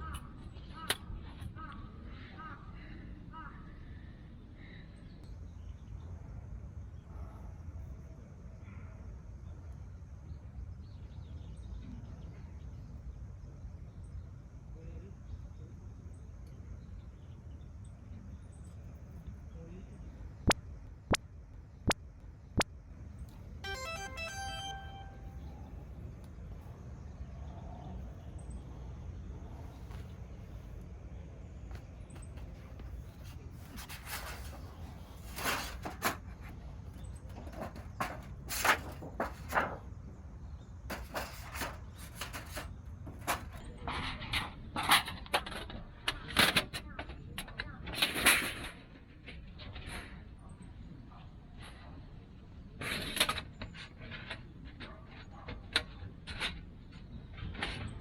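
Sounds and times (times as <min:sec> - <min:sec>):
low outdoor background: 0:00.0 - 0:58.0
scraping and rustling handling: 0:31.7 - 0:39.8.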